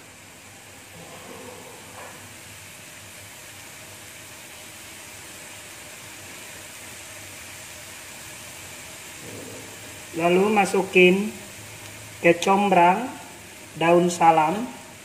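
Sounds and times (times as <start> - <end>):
spice paste frying in wok: 0.0 - 15.0.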